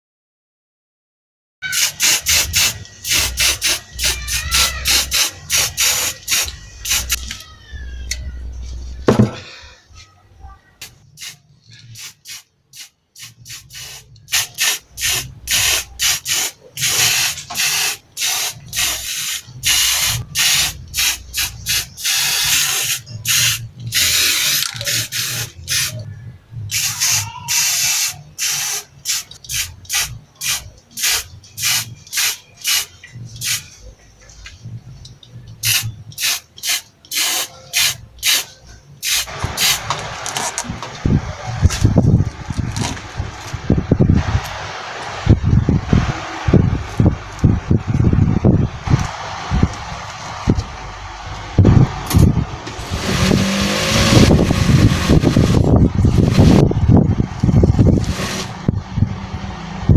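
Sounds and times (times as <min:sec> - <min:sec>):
spray paint can hissing: 0:01.7 - 0:07.4, 0:11.2 - 0:26.0, 0:26.7 - 0:33.8, 0:35.6 - 0:40.4, 0:52.0 - 0:56.7, 0:57.4 - 0:58.6.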